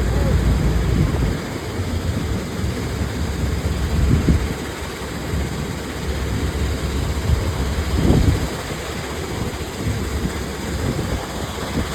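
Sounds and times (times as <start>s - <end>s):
excavator engine rumbling: 0.0s - 4.0s.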